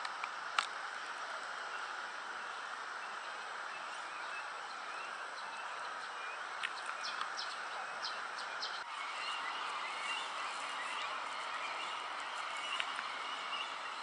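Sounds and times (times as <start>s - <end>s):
outdoor background noise: 0.0s - 14.0s
high bird chirps: 6.3s - 14.0s.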